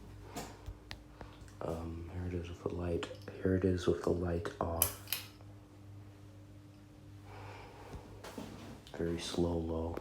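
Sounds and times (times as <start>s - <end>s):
ceiling fan motor hum: 0.0s - 10.0s.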